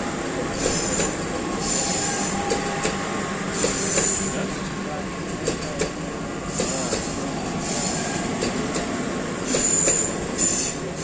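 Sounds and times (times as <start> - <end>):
train rumble: 0.0 - 11.0
train wheels squealing: 0.5 - 2.7, 3.5 - 4.4, 6.5 - 8.3, 9.4 - 11.0.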